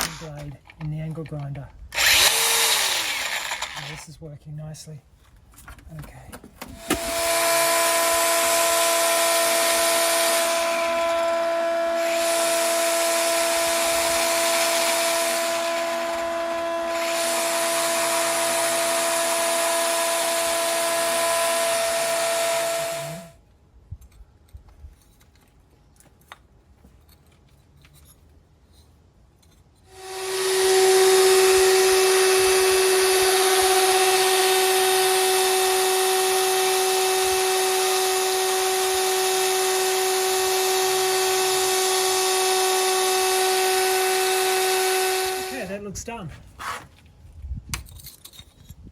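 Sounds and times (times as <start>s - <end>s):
angle grinder cutting brick: 0.0s - 0.5s, 1.9s - 4.1s, 6.8s - 23.4s, 29.9s - 45.9s.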